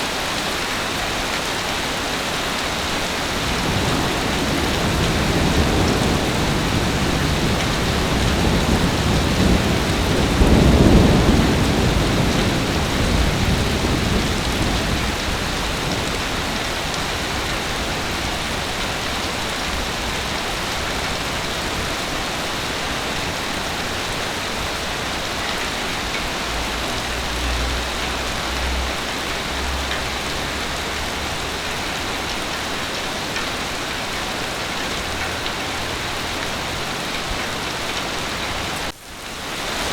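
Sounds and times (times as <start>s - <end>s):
heavy rain falling: 0.0s - 39.9s
thunder rumble: 2.8s - 31.6s.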